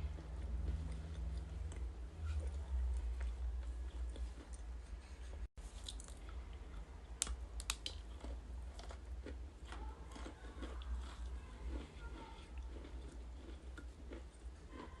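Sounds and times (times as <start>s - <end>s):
steady low hum: 0.0s - 15.0s
crunchy chewing: 5.8s - 15.0s.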